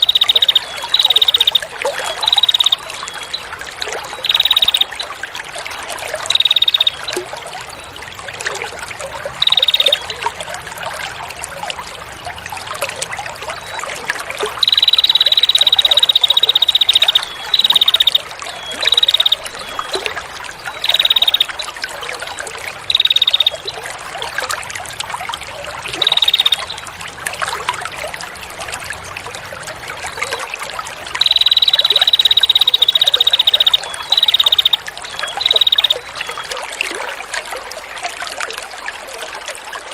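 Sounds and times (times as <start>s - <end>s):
songbird buzzy trill: 0.0s - 3.4s, 4.1s - 5.0s, 6.2s - 7.2s, 9.4s - 10.2s, 14.6s - 21.7s, 22.9s - 23.8s, 26.0s - 26.8s, 31.2s - 36.5s
trickling water: 0.0s - 39.9s.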